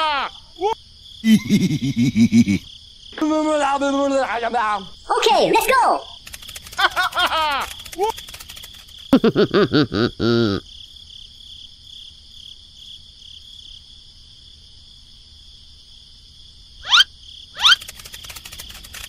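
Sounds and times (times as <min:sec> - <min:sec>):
squeaky cartoon character chatter: 0:05.0 - 0:08.2, 0:16.8 - 0:18.2
quick rising whistles: 0:16.8 - 0:19.0.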